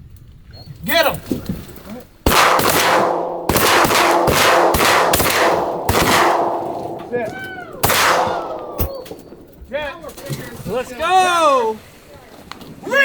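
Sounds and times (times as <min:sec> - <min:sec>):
shotgun blasts: 0:02.3 - 0:09.6.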